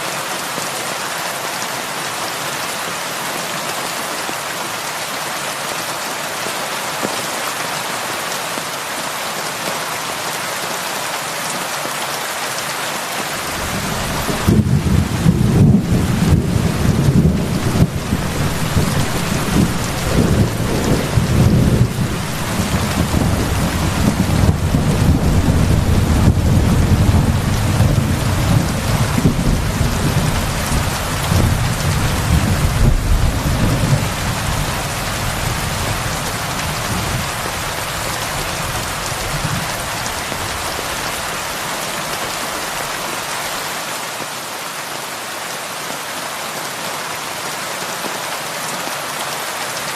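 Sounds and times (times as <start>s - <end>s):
heavy rain falling: 0.0s - 49.9s
low roll of thunder: 13.6s - 37.4s.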